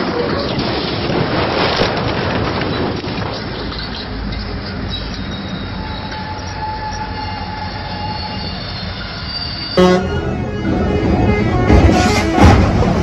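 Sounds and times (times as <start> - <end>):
freight train rumble: 0.0 - 13.0
high squealing whine: 3.7 - 12.4.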